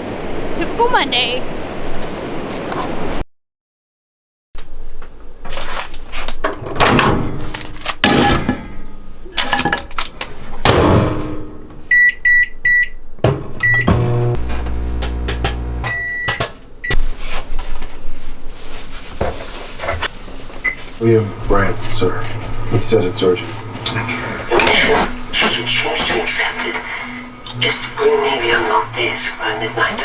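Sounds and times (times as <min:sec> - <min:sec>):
microwave keypad beeps: 0:11.9 - 0:13.0, 0:13.6 - 0:14.6, 0:15.4 - 0:17.0
microwave oven humming: 0:13.2 - 0:16.6, 0:21.2 - 0:30.0.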